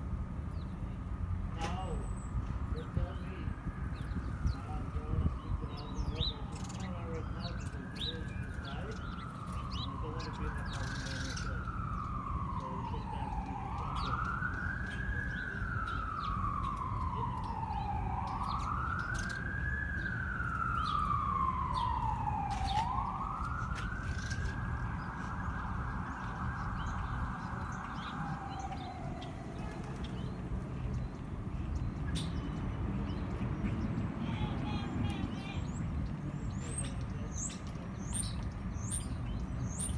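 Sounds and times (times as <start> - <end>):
siren wailing: 2.6 - 30.6.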